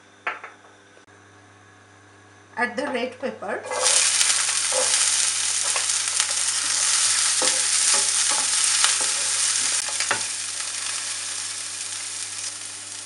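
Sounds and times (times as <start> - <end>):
spatula scraping a pan: 3.6 - 11.2
pepper sizzling in hot oil: 3.6 - 13.0.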